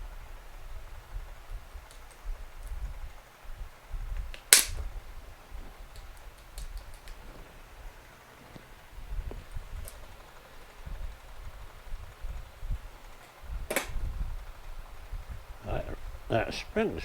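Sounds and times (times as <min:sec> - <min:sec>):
loud sharp snap: 0:04.2 - 0:05.0, 0:13.7 - 0:14.1.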